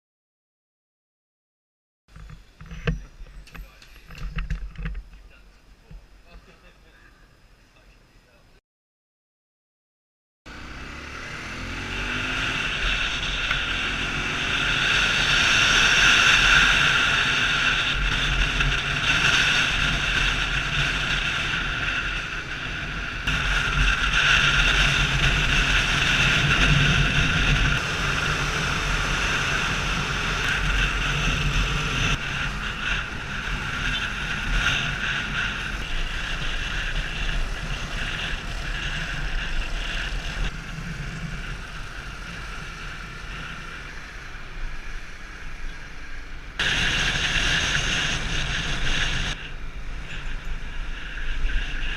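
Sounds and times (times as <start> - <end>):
road and wind noise: 2.1 - 8.6, 10.5 - 51.9
motorcycle engine running: 10.5 - 51.9.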